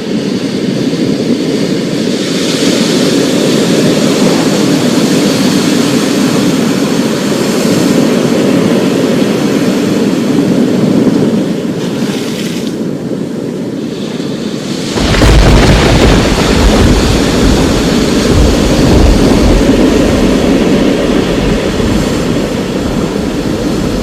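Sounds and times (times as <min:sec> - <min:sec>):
loud roaring rain: 0:00.0 - 0:24.0
rolling thunder: 0:14.8 - 0:24.0.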